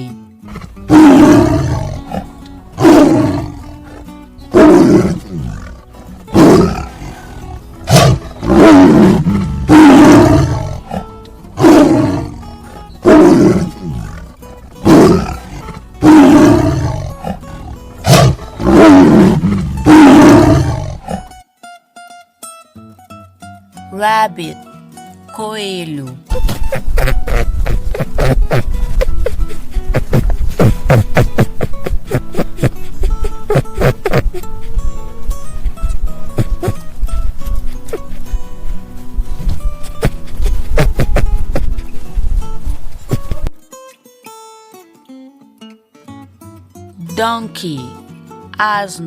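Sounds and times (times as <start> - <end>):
tiger roaring: 0.4 - 21.3.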